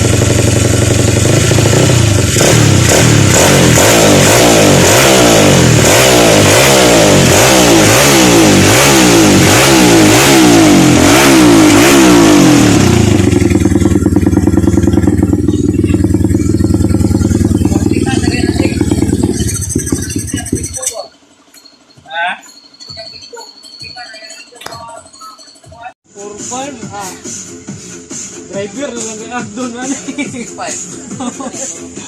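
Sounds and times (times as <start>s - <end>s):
motorcycle engine revving and idling: 0.0s - 23.4s.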